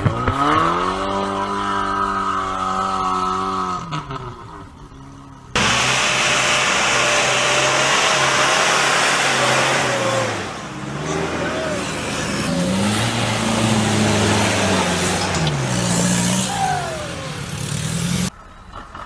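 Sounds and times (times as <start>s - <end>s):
off-road vehicle engine revving: 0.0s - 18.3s
loud even rushing noise: 5.6s - 17.8s.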